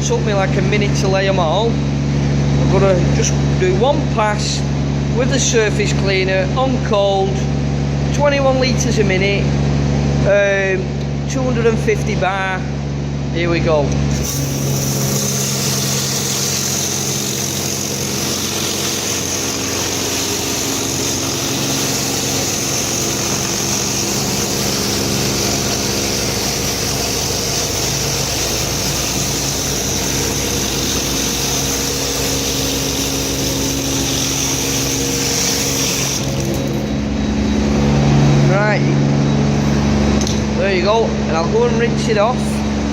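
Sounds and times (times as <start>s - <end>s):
pressure washer engine running: 13.9s - 42.9s
rotary surface cleaner jets hissing: 14.1s - 37.2s.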